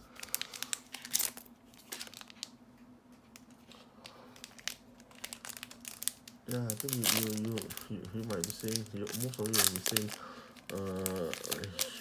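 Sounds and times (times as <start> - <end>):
wrapper crinkling: 0.0 - 2.6, 3.2 - 12.0
cards being handled: 6.5 - 12.0.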